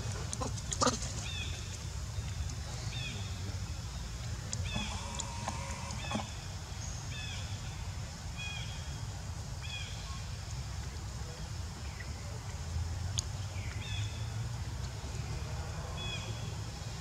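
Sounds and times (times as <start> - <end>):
bird chirping: 1.2 - 7.5.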